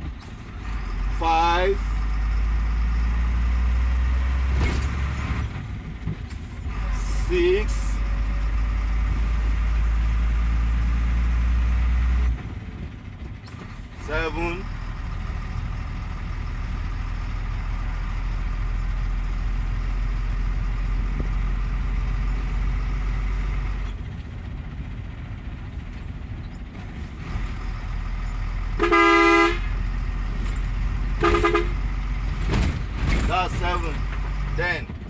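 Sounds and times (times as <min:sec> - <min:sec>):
truck engine droning: 0:00.0 - 0:35.0
vehicle horn blasts: 0:28.7 - 0:29.8, 0:31.1 - 0:32.0.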